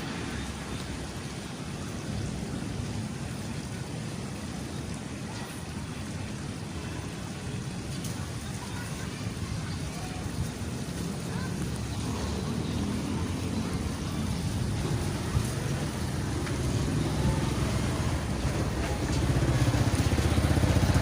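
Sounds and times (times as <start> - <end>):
vehicle engine approaching: 11.6 - 21.0.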